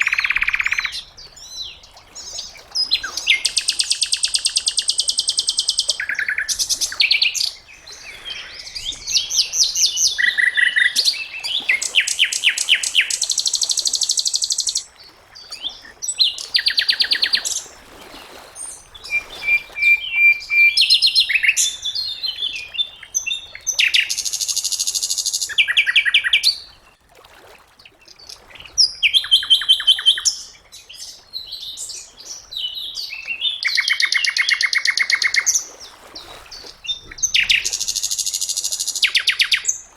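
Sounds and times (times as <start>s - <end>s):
songbird trilling and chattering: 0.0s - 1.0s, 3.1s - 14.8s, 33.2s - 35.6s, 36.9s - 39.7s.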